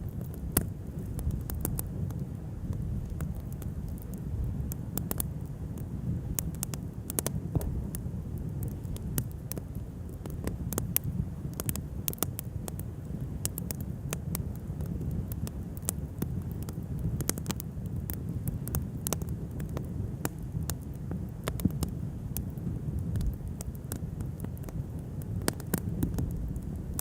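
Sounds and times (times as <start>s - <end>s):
bonfire crackling and popping: 0.0s - 27.0s
low rumble: 7.5s - 9.0s.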